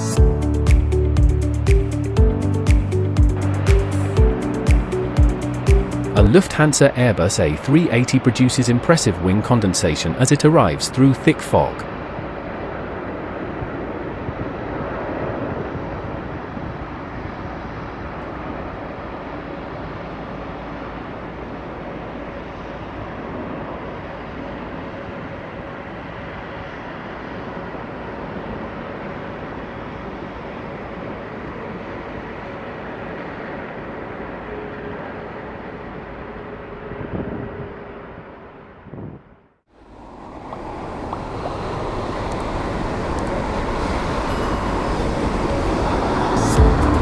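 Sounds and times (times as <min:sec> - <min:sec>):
jet engine rush: 0:00.0 - 0:47.0
faint hum: 0:06.2 - 0:47.0.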